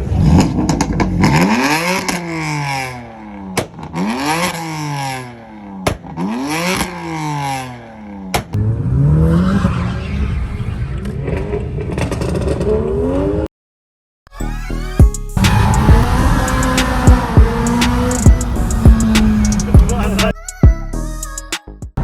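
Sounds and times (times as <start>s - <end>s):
car engine revving hard: 0.0s - 3.1s, 15.4s - 20.3s
sharp crack between revs: 0.0s - 8.6s, 15.4s - 20.4s.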